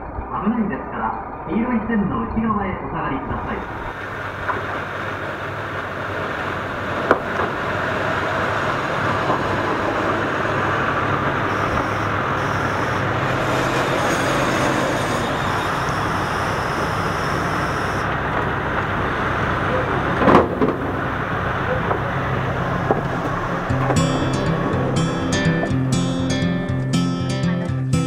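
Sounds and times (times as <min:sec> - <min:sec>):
diesel train engines droning: 0:00.0 - 0:28.0
train cars rumbling: 0:00.0 - 0:28.0
faint high-pitched squeal: 0:11.4 - 0:18.1.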